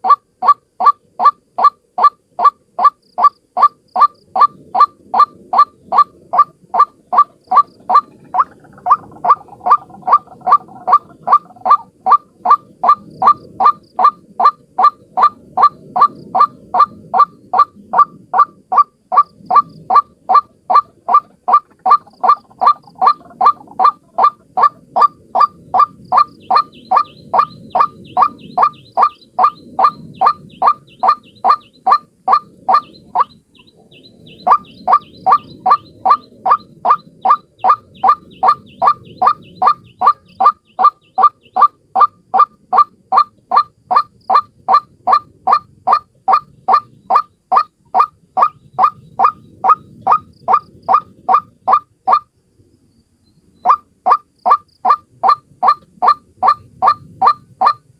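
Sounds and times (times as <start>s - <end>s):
waterhen calling harsh notes: 0.0s - 52.3s, 53.7s - 57.9s.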